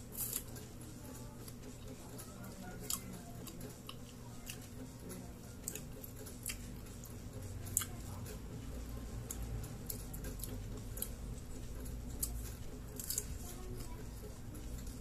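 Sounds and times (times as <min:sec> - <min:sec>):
crunchy chewing: 0:00.0 - 0:08.4, 0:09.2 - 0:15.0.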